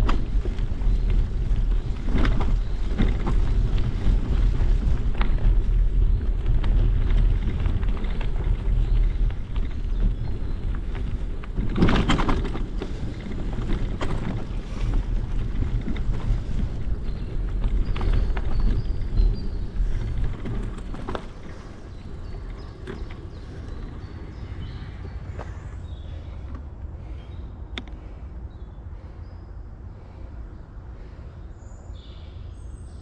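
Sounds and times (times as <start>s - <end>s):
bicycle rattling over bumps: 0.0s - 26.7s
bicycle tyres rumbling: 0.0s - 27.4s
wind buffeting microphone: 0.0s - 27.6s.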